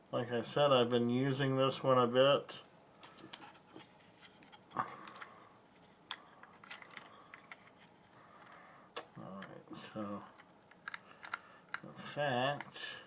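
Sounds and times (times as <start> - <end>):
small plastic parts clicking: 6.1 - 7.8, 10.3 - 11.9.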